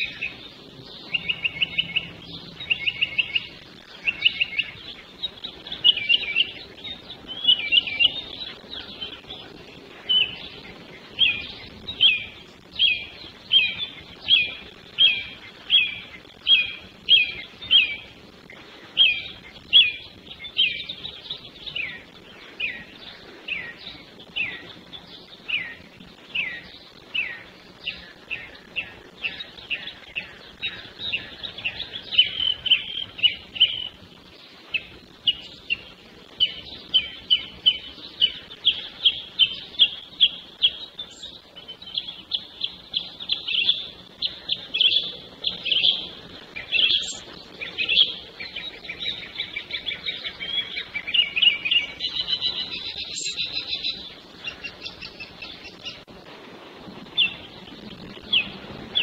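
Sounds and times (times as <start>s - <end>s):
songbird whistling: 0.0s - 18.2s, 19.0s - 34.0s, 34.7s - 56.0s.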